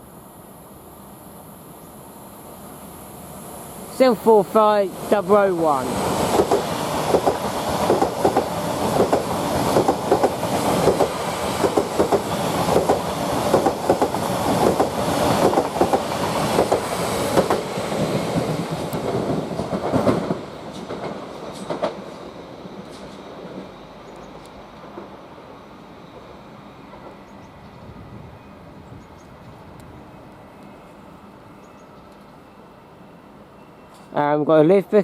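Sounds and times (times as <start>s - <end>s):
train rumble: 3.6s - 34.2s
train wheels clicking over rail joints: 6.3s - 25.2s.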